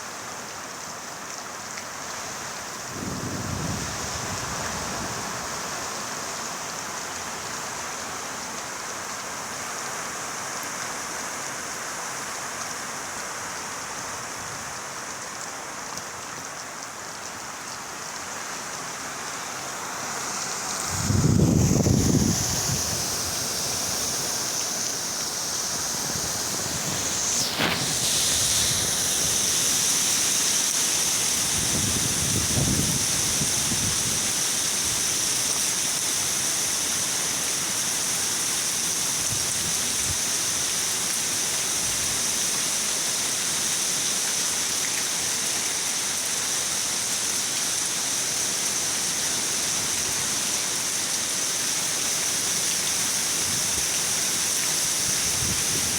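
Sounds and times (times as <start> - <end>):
heavy rain hiss: 0.0 - 55.9
strong wind gusts: 2.9 - 5.6, 20.8 - 24.3, 31.4 - 34.2, 55.0 - 55.9.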